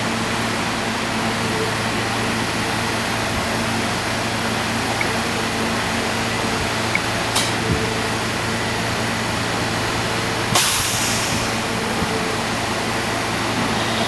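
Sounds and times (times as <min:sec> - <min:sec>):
subway train humming: 0:00.0 - 0:14.0
compressed air hiss: 0:10.5 - 0:11.8.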